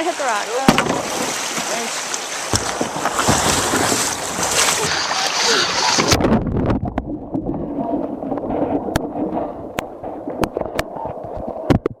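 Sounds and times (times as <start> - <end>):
muffled gurgling water: 2.5 - 12.0
sharp clicks and crackles: 9.7 - 12.0.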